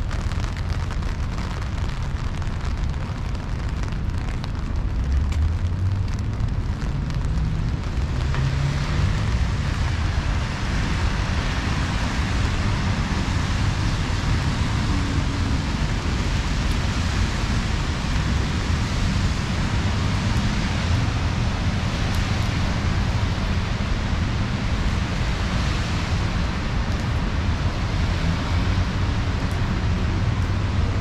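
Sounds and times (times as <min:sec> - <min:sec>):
low rumble: 0:00.0 - 0:22.4
rain hissing: 0:00.0 - 0:31.0.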